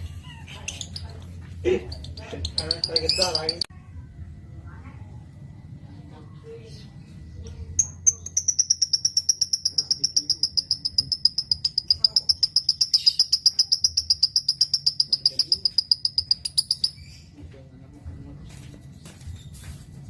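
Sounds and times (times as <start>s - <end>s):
lovebird chattering trill: 0.5s - 1.2s, 1.8s - 3.7s, 7.8s - 17.3s.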